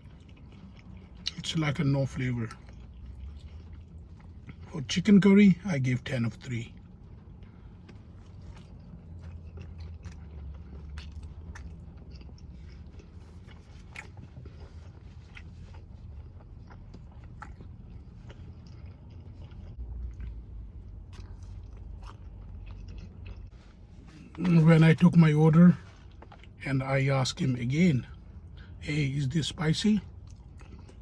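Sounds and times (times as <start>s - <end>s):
person chewing food: 0.0s - 4.8s, 6.7s - 26.6s, 30.0s - 31.0s
low steady hum: 0.0s - 31.0s.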